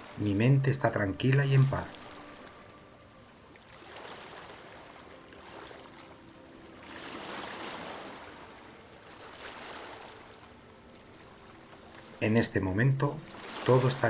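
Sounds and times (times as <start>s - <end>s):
sea waves washing in: 0.0s - 14.0s.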